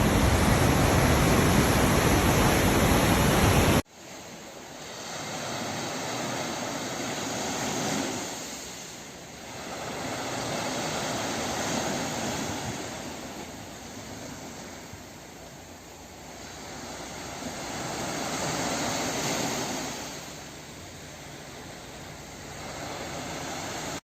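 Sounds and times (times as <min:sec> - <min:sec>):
sea waves washing onto beach: 0:00.0 - 0:24.0.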